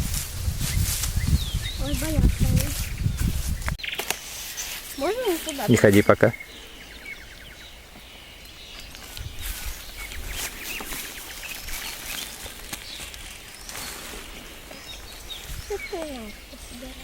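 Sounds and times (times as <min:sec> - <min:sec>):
wind rumble on microphone: 0:00.0 - 0:03.8, 0:08.8 - 0:12.0, 0:14.8 - 0:17.0
rustling: 0:00.0 - 0:06.8, 0:08.7 - 0:17.0
small birds chirping: 0:00.6 - 0:17.0.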